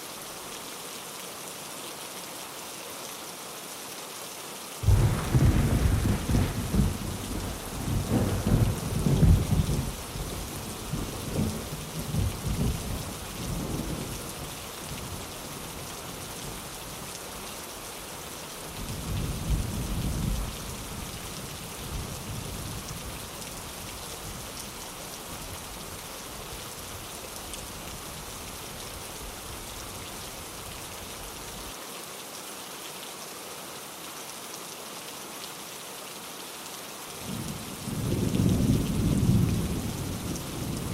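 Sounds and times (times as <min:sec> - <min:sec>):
steady rain: 0:00.0 - 0:40.9
rolling thunder: 0:04.8 - 0:14.1.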